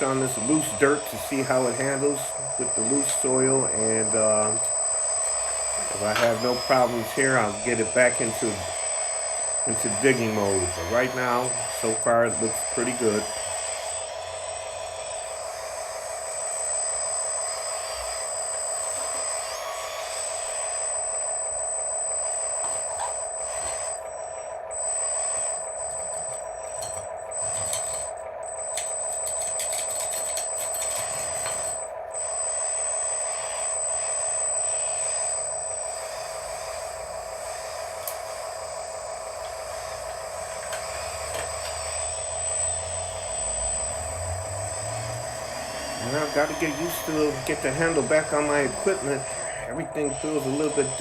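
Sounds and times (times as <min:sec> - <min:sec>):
electric hydraulic pump whining: 0:00.0 - 0:51.0.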